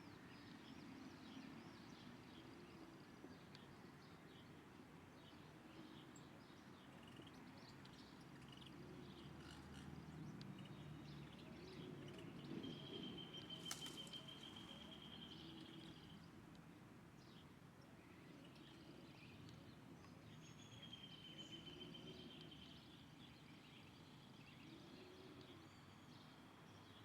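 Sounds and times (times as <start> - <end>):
faint bird chirps: 9.4 - 16.2.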